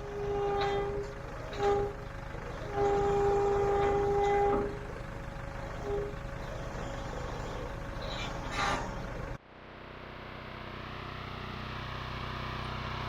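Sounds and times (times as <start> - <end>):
vehicle horn honking: 0.0 - 4.9, 5.8 - 6.2
engine rumbling: 0.0 - 13.0.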